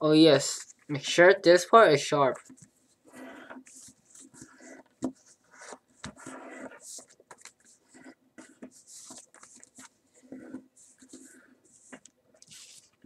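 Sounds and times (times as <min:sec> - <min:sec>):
paper crackling and rustling: 0:03.6 - 0:13.0.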